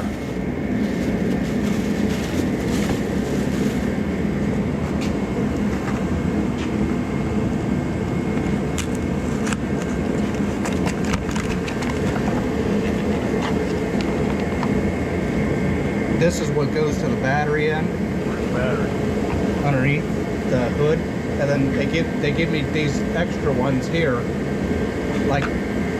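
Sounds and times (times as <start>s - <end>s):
truck engine running: 0.0s - 25.9s.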